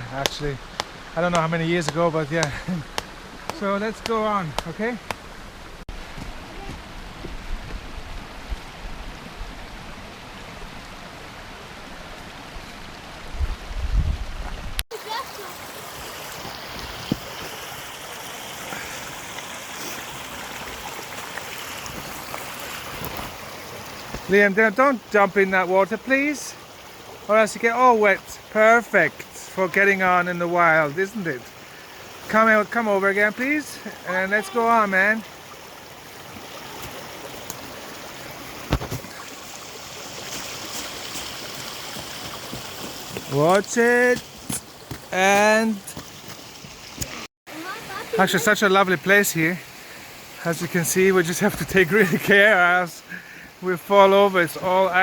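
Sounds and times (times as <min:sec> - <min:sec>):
mountain stream rushing: 0:00.0 - 0:55.0
sharp thump and knocks: 0:38.7 - 0:39.1.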